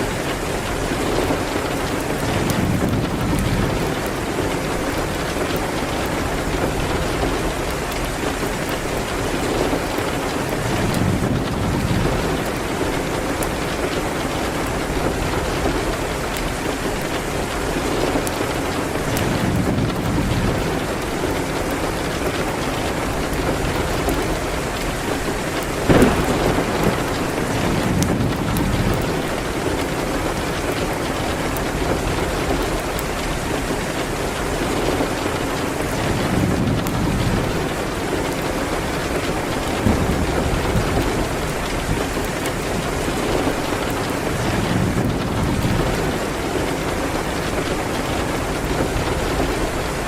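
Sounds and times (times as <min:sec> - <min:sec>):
steady rain: 0:00.0 - 0:50.0
wood fire crackling: 0:00.0 - 0:50.0
rolling thunder: 0:00.9 - 0:17.0, 0:19.1 - 0:33.4, 0:34.6 - 0:50.0
sharp loud crack: 0:25.9 - 0:27.2.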